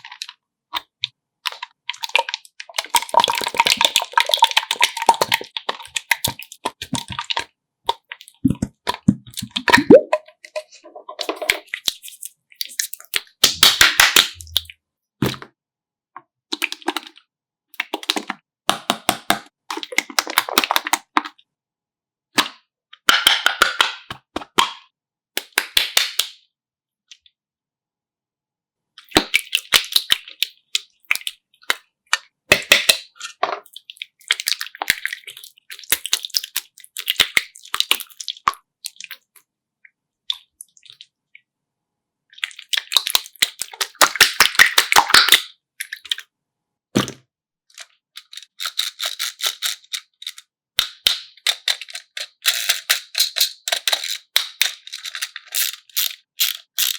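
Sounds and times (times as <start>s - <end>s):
slime squeezed crackling pops: 13.4s - 15.4s.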